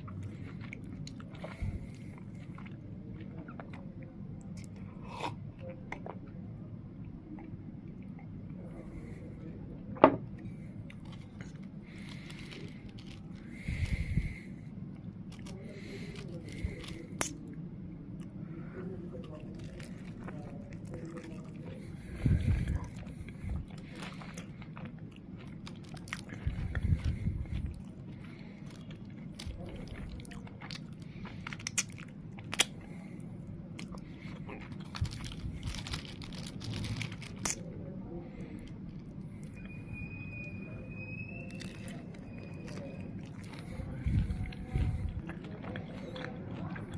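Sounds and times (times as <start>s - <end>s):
chewing crunchy food: 0.0s - 6.4s, 10.3s - 39.8s, 41.3s - 46.9s
wet mouth sounds: 16.6s - 17.6s, 19.3s - 32.9s
wrapper scraping and rustling: 34.8s - 37.5s.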